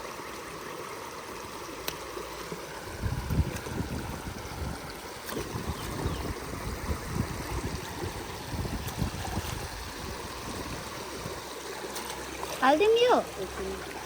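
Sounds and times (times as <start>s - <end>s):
river water lapping at bank: 0.0s - 14.0s
wind rumble on microphone: 2.8s - 11.4s.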